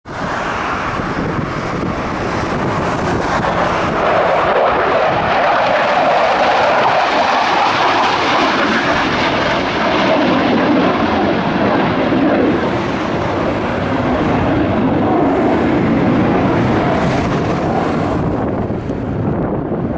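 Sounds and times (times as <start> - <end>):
fighter jet engines roaring: 0.0 - 19.9.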